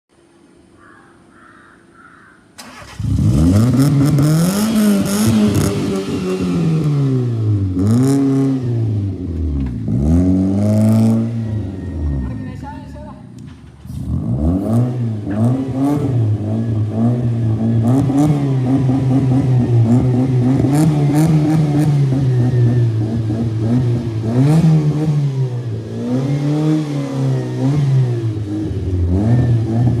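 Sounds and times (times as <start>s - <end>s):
exhaust cracks: 2.6s - 8.5s
car engine revving: 2.6s - 12.5s, 13.3s - 30.0s.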